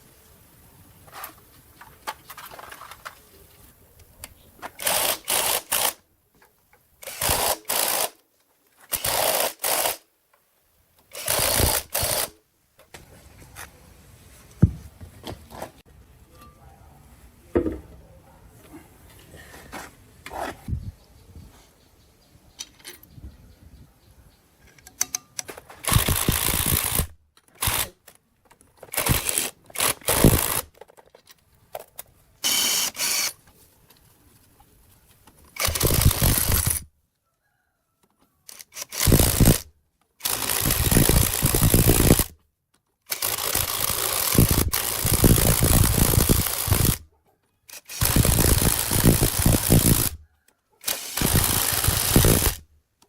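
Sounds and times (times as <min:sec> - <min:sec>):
loud machine noise bursts: 0:50.9 - 0:52.6.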